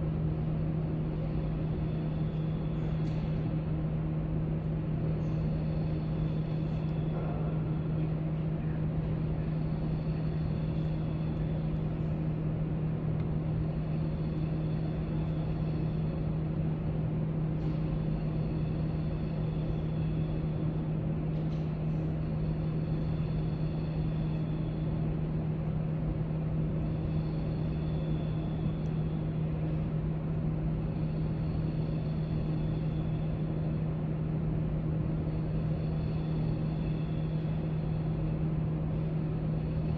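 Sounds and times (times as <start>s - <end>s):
low ventilation hum: 0.0s - 39.9s.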